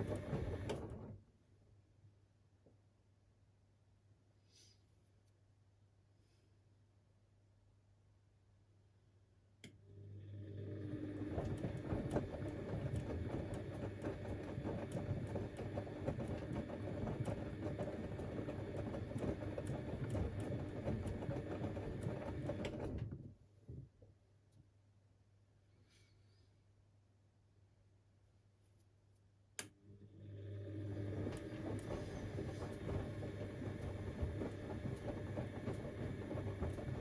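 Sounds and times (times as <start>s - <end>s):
washing machine motor hum: 0.0s - 1.3s, 9.8s - 23.3s, 29.8s - 37.0s.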